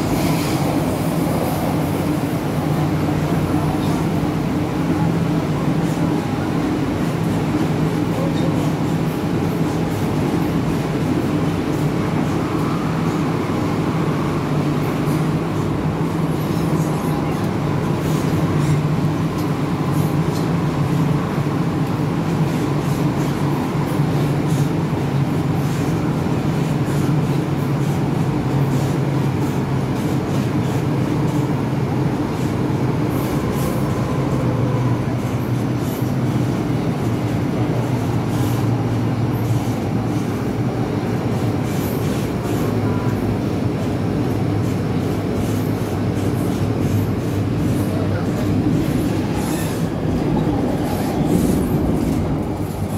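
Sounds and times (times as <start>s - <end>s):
train wheels rumbling: 0.0s - 52.9s.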